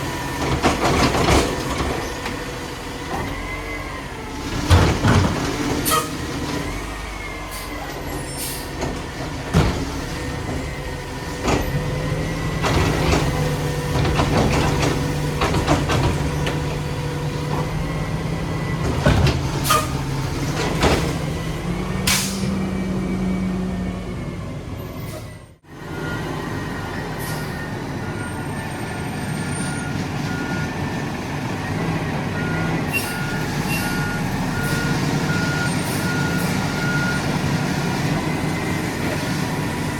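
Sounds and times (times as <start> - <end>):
diesel engine running under load: 0.0 - 39.9
air brake hisses: 7.5 - 8.8, 22.1 - 22.6
reversing alarm beeps: 25.8 - 30.8, 31.6 - 39.9.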